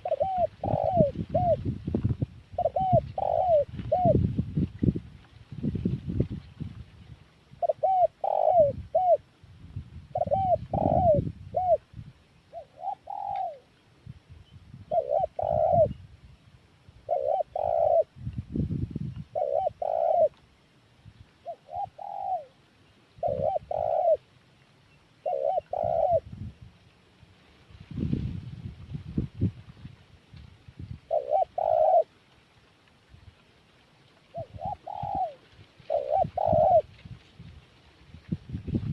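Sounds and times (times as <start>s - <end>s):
dove cooing: 0.0s - 1.7s, 2.5s - 4.3s, 7.6s - 9.3s, 10.1s - 11.9s, 12.5s - 13.7s, 14.9s - 16.0s, 17.0s - 18.1s, 19.3s - 20.4s, 21.4s - 22.6s, 23.2s - 24.3s, 25.2s - 26.3s, 31.1s - 32.1s, 34.3s - 37.0s.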